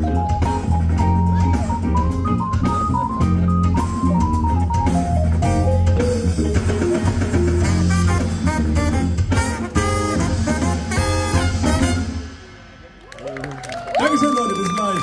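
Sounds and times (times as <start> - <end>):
live band playing: 0.0 - 15.0
horns playing: 7.6 - 12.8.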